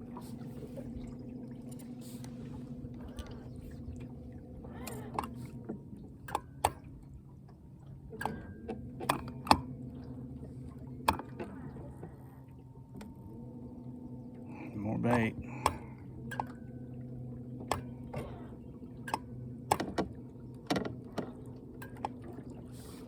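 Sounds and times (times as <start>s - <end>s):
water sloshing against boat hull: 0.0s - 23.0s.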